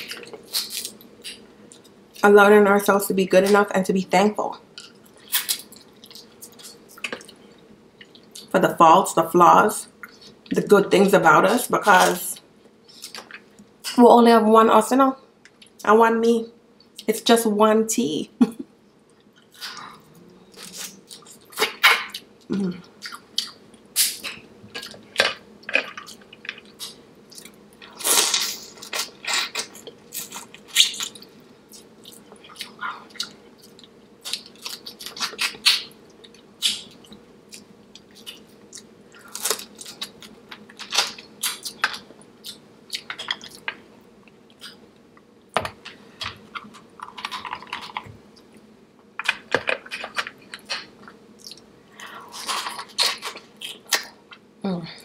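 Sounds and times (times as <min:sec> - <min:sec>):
faint steady hum: 0:00.0 - 0:55.0
wet chewing and mouth smacks: 0:50.5 - 0:51.7.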